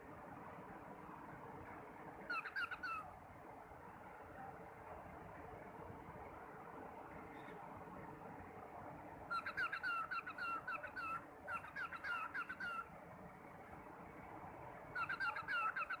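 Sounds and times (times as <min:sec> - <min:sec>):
background noise: 0:00.0 - 0:16.0
parrot chirping: 0:02.3 - 0:03.0, 0:15.0 - 0:16.0.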